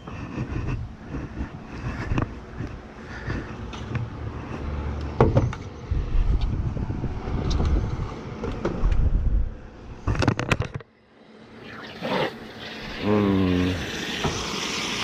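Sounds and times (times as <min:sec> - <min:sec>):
sharp knocks and clatter: 0:05.2 - 0:05.7
low rumble: 0:05.8 - 0:10.2.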